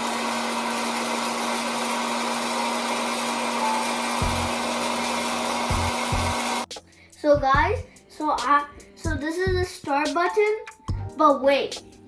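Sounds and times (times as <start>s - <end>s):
popcorn machine fan whirring: 0.0s - 6.7s.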